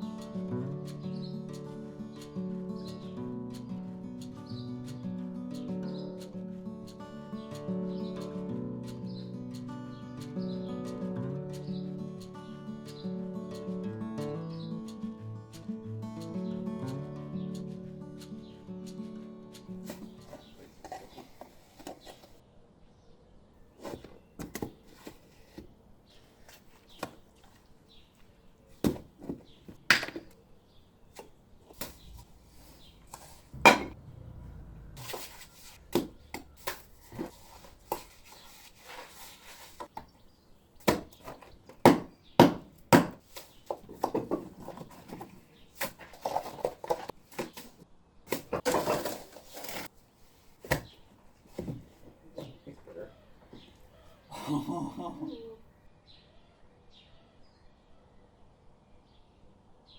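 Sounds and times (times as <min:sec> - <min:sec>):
scraping and rubbing on stone: 0:19.9 - 0:22.4, 0:35.0 - 0:40.2, 0:48.4 - 0:50.6
tools knocking on stone: 0:28.8 - 0:30.3, 0:33.5 - 0:34.0, 0:40.9 - 0:45.4.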